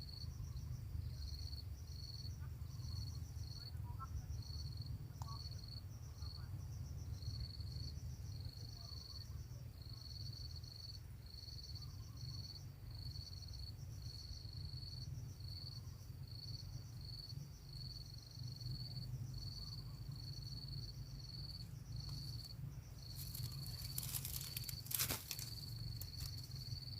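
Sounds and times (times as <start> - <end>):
insect chirping: 0.0 - 26.9
low steady rumble: 0.0 - 26.9
rustling: 22.0 - 26.9.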